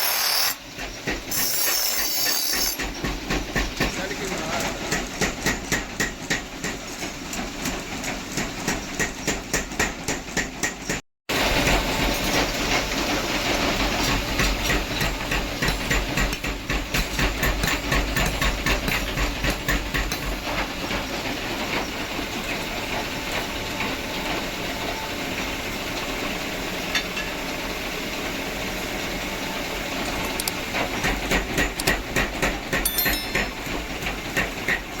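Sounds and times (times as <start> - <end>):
hammer knocking on iron: 31.3 - 33.8.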